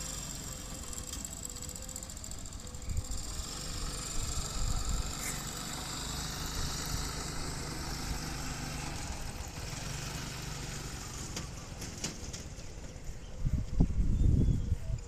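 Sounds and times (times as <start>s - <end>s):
humming bow droning: 0.0s - 11.8s
wind buffeting microphone: 12.8s - 15.0s.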